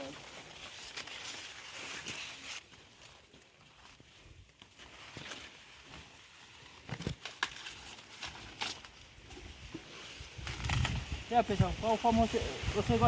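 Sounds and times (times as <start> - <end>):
corn plants rustling: 0.0 - 13.0
corn ears snapping: 6.7 - 9.6, 10.3 - 12.2.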